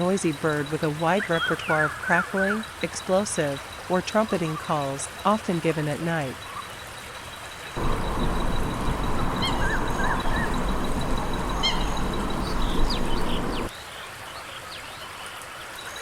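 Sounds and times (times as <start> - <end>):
coots honking harshly: 7.8 - 13.7
high bird chirps: 7.8 - 13.7.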